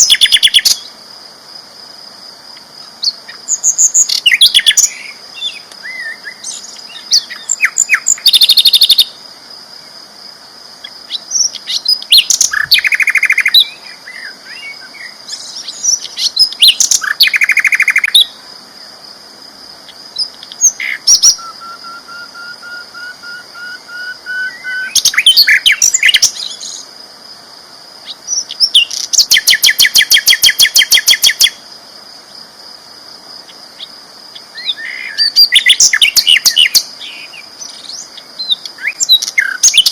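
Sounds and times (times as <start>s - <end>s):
flycatcher singing: 3.0s - 9.2s, 10.8s - 18.4s, 19.9s - 26.9s, 28.0s - 31.6s, 33.8s - 39.9s.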